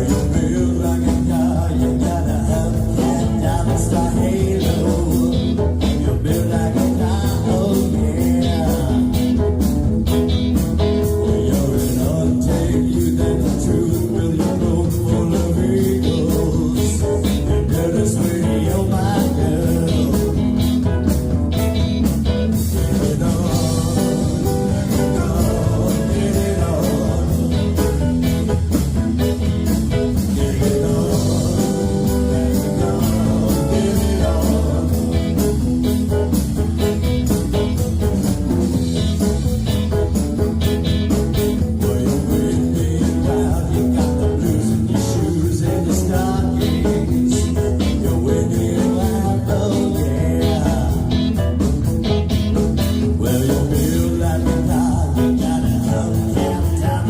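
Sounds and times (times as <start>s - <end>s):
live blues-rock band playing: 0.0s - 57.0s.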